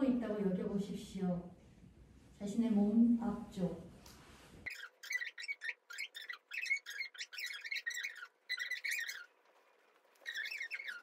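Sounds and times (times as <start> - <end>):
small bird twittering: 4.7 - 9.3, 10.2 - 11.0.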